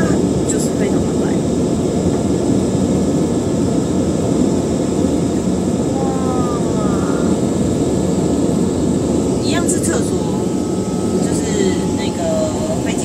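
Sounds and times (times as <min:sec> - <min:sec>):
jet airliner cabin roar: 0:00.0 - 0:13.0
thin high whine: 0:08.9 - 0:13.0.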